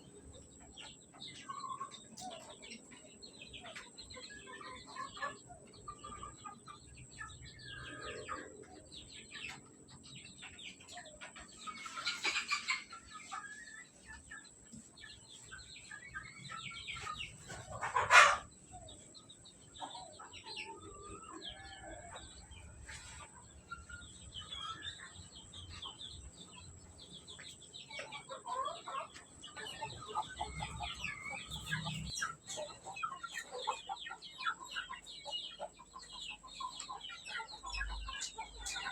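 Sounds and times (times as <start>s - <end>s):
chickens clucking: 0.0s - 38.9s
chickens scuffling: 9.5s - 19.0s, 20.2s - 33.9s.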